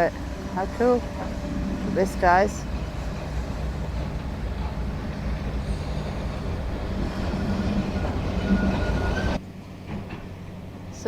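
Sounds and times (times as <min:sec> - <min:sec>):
tram rumbling on rails: 0:00.0 - 0:11.0
thin wheel squeal: 0:05.6 - 0:09.4.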